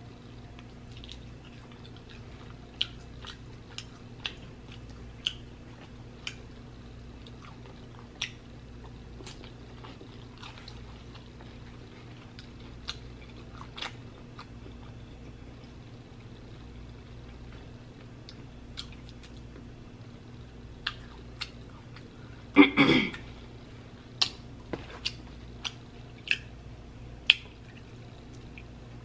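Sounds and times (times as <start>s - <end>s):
steady low hum: 0.0s - 29.0s
wet chewing: 0.6s - 6.4s, 7.2s - 15.0s, 24.2s - 26.6s
lip smacks and clicks: 2.8s - 6.4s, 18.0s - 19.7s, 20.8s - 22.1s, 24.2s - 26.6s, 27.2s - 28.7s.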